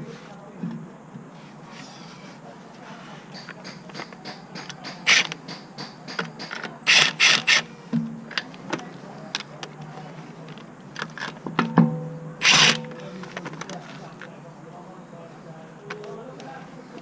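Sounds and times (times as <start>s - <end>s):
ratchet wrench clicking: 3.4s - 7.6s.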